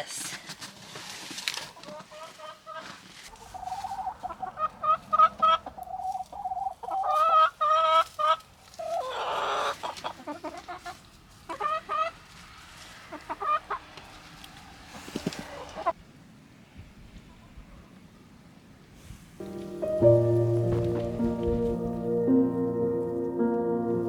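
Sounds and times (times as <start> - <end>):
chickens clucking: 1.7 - 16.0.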